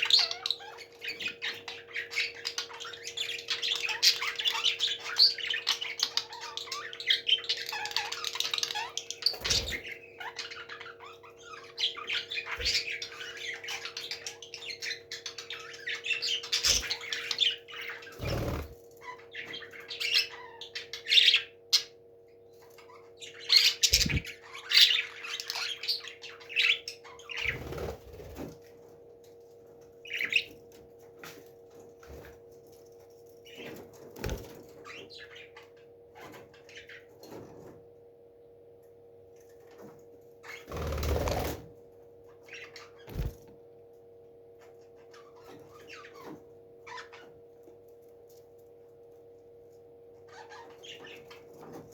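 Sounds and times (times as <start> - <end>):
steady low hum: 22.2 - 25.3.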